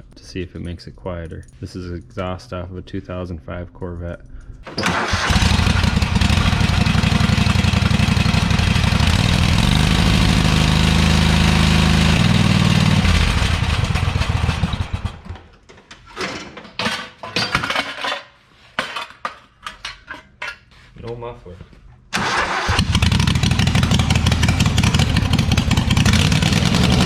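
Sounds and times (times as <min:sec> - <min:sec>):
lawn mower engine running: 0:04.7 - 0:15.4, 0:22.2 - 0:27.0.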